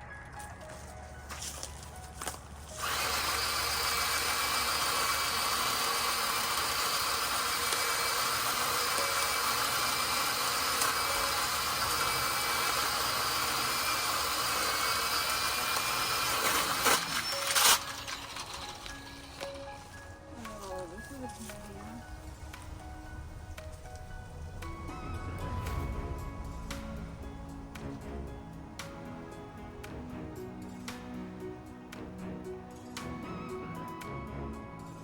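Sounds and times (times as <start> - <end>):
small motor whirring: 2.6 - 21.4.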